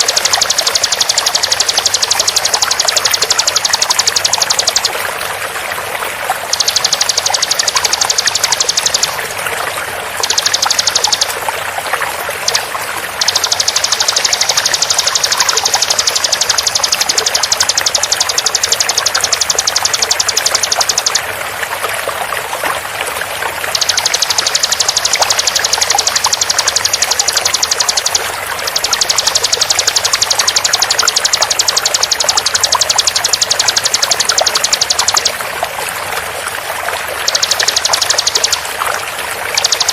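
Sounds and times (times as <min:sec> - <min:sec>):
bird trilling rapid high notes: 0:00.0 - 0:05.0, 0:06.4 - 0:09.4, 0:10.1 - 0:11.5, 0:12.4 - 0:21.3, 0:23.7 - 0:35.6, 0:37.0 - 0:38.8, 0:39.4 - 0:39.9
flowing water: 0:00.0 - 0:39.9.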